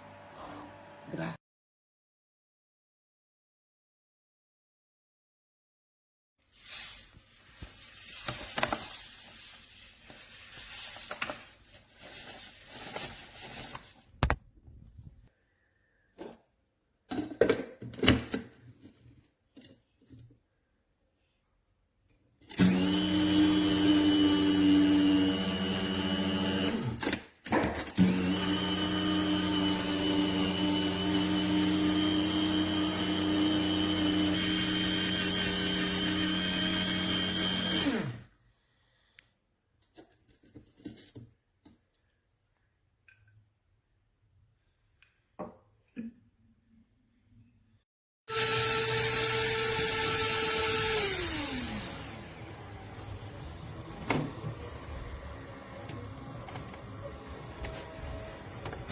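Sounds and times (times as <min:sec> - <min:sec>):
coffee grinder motor whining: 0:22.5 - 0:27.0, 0:28.0 - 0:38.3, 0:48.3 - 0:58.9.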